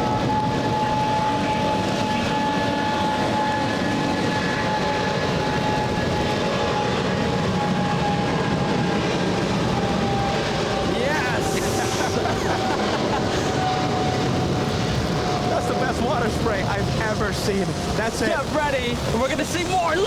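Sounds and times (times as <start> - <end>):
jet engine high whine: 0.0 - 20.0
jet engines rumbling at takeoff: 0.0 - 20.0.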